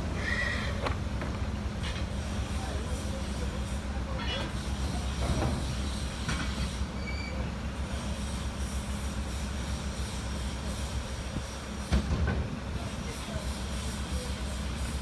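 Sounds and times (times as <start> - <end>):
diesel engine running: 0.0 - 5.2.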